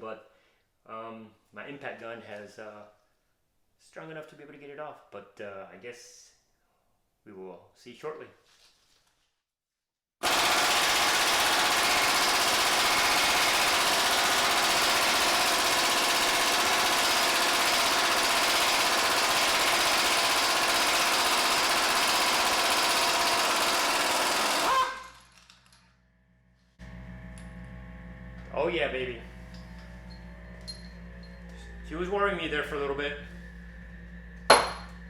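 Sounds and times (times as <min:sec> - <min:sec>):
impact gun hammering: 0:34.5 - 0:34.9.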